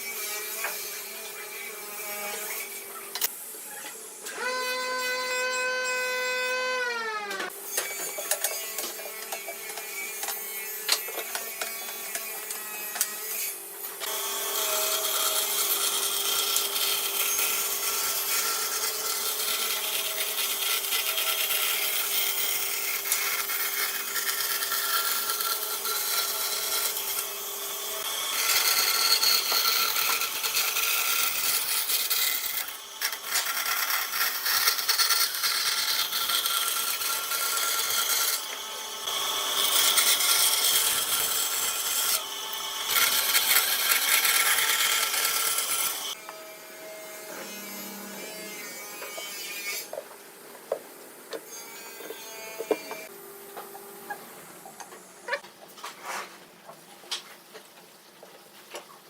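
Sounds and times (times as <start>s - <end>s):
rasping of wood cutting: 28.0s - 42.2s, 42.8s - 46.2s.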